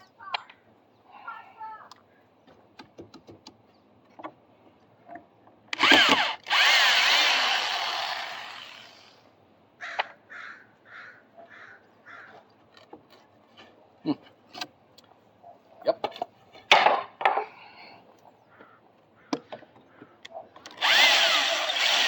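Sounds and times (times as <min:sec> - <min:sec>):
power drill whining: 0:05.7 - 0:09.2, 0:20.7 - 0:22.0.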